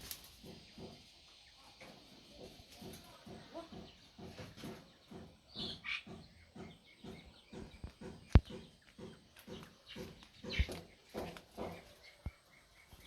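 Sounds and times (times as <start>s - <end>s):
poultry clucking: 0.2s - 13.0s
sharp knocks: 2.8s - 11.9s.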